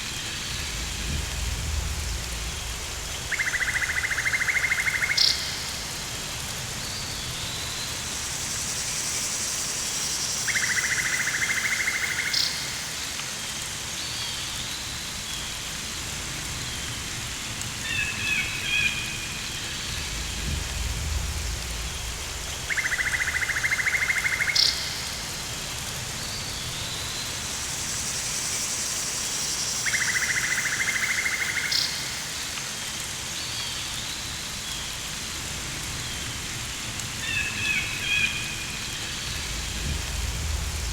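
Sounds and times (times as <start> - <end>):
rain hiss: 0.0 - 40.9
soft low rumble: 0.4 - 3.3, 19.8 - 22.7, 39.1 - 40.9.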